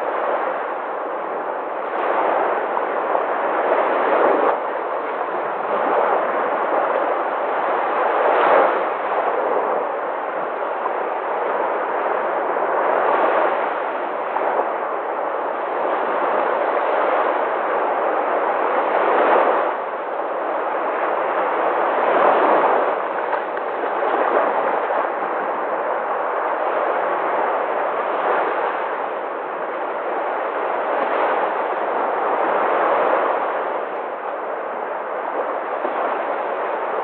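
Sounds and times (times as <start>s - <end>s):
sea waves breaking: 0.0s - 37.0s.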